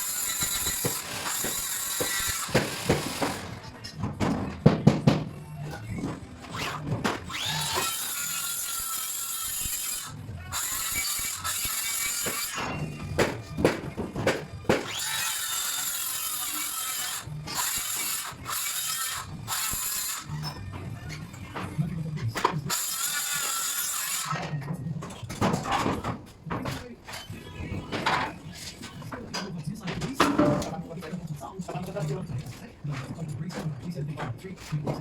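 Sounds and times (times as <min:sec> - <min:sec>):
power tool motor running: 0:00.0 - 0:03.6, 0:06.5 - 0:12.5, 0:14.8 - 0:20.3.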